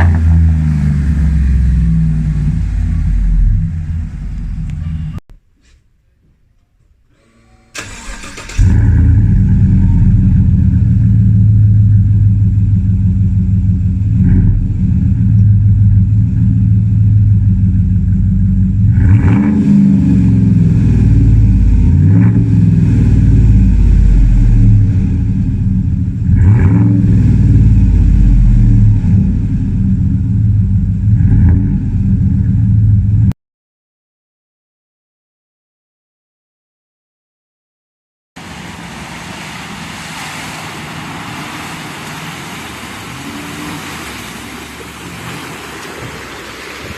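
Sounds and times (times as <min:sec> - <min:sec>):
engine revving: 0:00.0 - 0:05.2, 0:07.8 - 0:33.3
truck engine starting: 0:00.0 - 0:05.2, 0:07.0 - 0:33.3.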